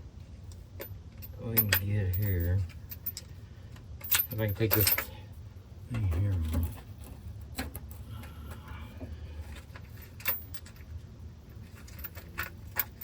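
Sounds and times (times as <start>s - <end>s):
low steady hum: 0.0s - 13.0s
hand tools clinking on metal: 1.2s - 3.3s, 4.0s - 5.2s.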